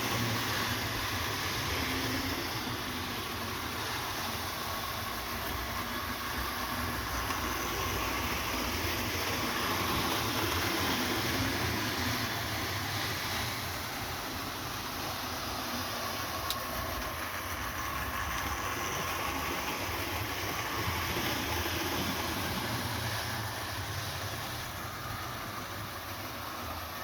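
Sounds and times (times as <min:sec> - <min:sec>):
small wheels rumbling on rails: 0:00.0 - 0:27.0
click: 0:16.4 - 0:16.6.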